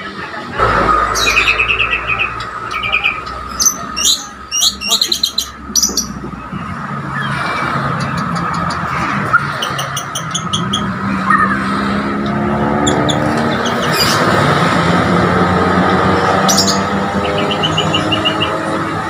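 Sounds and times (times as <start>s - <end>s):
songbirds chirping: 0.0s - 14.5s, 15.4s - 19.0s
loud low drone: 0.1s - 4.5s.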